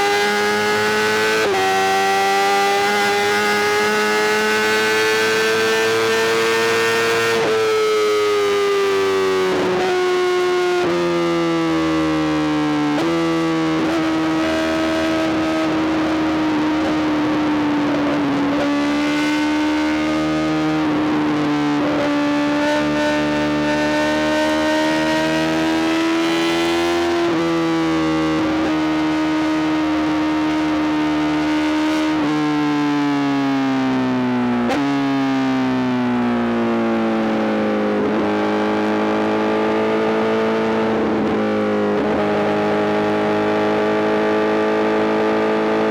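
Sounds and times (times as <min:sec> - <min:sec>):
motorcycle engine at high revs: 0:00.0 - 0:45.9.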